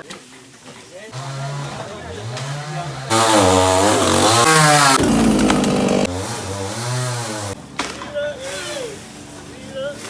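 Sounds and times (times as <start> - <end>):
small engine revving: 1.2 - 7.6.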